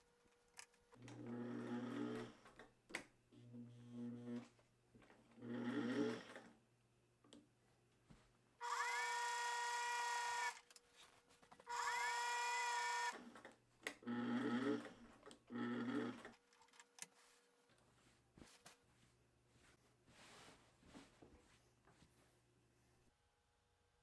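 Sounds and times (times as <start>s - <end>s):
electric sewing machine stitching: 1.0s - 2.5s, 5.4s - 6.5s, 8.6s - 10.6s, 11.7s - 13.4s, 14.0s - 16.4s.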